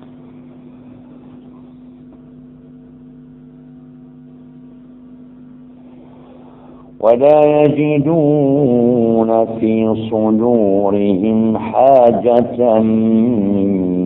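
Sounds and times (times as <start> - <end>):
steady electrical hum: 0.0 - 14.0.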